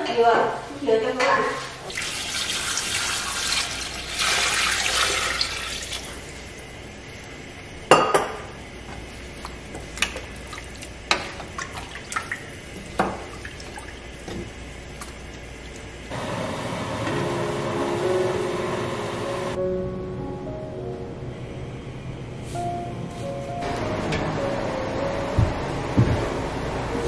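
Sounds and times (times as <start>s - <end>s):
liquid pouring into a pot: 1.9s - 6.4s.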